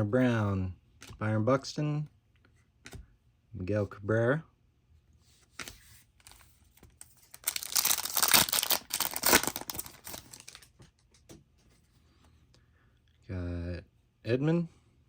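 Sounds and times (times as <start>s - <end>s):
foil wrapper tearing and crinkling: 7.3s - 10.7s.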